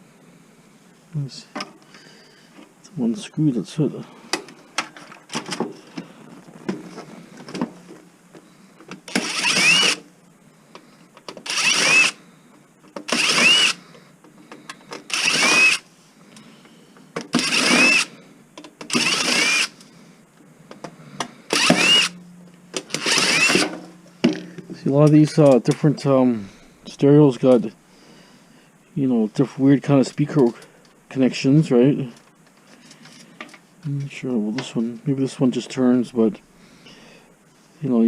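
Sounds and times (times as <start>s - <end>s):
cordless drill motor whine: 9.1s - 10.1s, 11.4s - 12.2s, 13.1s - 13.9s, 15.0s - 15.9s, 17.3s - 18.2s, 18.9s - 19.9s, 21.5s - 22.2s, 22.8s - 23.6s.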